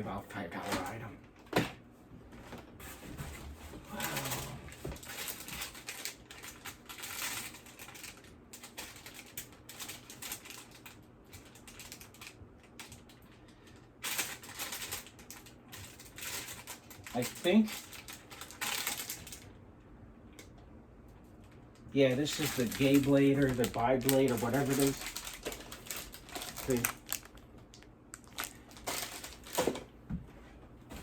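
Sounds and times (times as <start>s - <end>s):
plastic or paper rustling: 2.8s - 19.5s, 22.0s - 29.9s.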